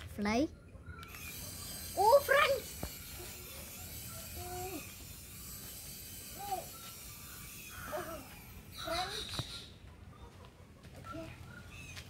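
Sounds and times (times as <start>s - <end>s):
rising and falling calls: 0.9s - 10.4s
toy helicopter motor whine: 1.0s - 9.4s.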